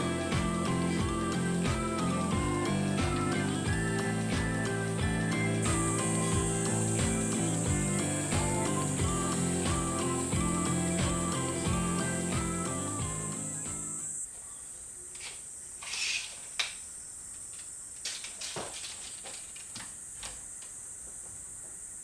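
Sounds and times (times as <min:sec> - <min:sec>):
background music: 0:00.0 - 0:14.1
high-pitched insect drone: 0:00.0 - 0:14.3.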